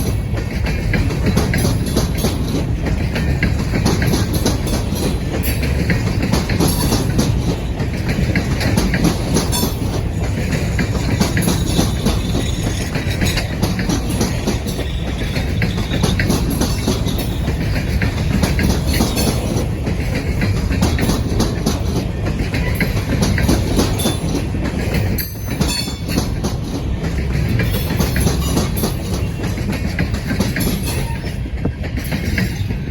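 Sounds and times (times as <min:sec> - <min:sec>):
train cars rumbling past: 0:00.0 - 0:32.9
wheels clicking over rail joints: 0:00.0 - 0:32.9.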